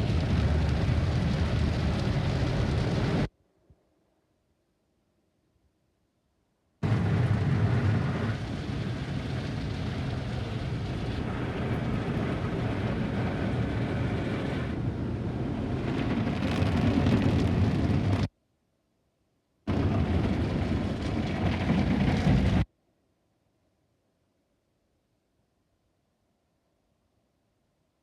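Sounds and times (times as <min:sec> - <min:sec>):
low mechanical rumble: 0:00.0 - 0:03.3, 0:06.8 - 0:18.3.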